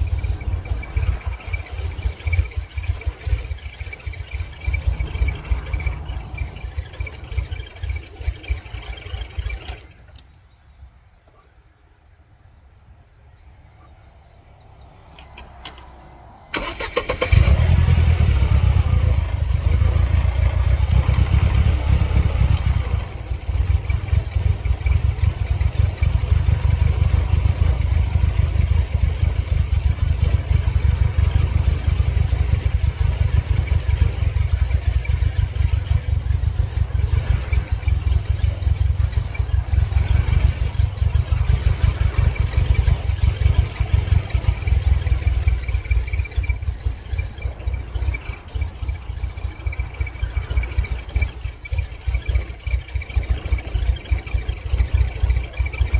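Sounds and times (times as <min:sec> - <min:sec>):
starter cranking car engine: 0:00.0 - 0:10.3, 0:15.1 - 0:55.9
car engine idling: 0:00.0 - 0:12.8, 0:13.8 - 0:55.9.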